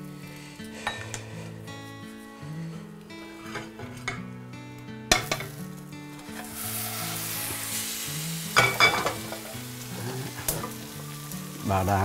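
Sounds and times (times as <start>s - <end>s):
plate and pan clattering: 0.8s - 1.3s, 3.3s - 4.3s, 5.1s - 5.6s, 8.5s - 9.6s
pan knocking against plate: 5.1s - 5.6s, 8.6s - 9.4s
omelette sizzling in hot oil: 5.1s - 12.0s.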